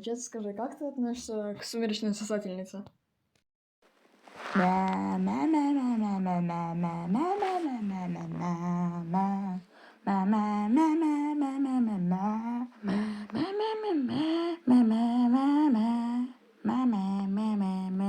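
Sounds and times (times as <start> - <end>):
person humming: 4.4 - 18.0.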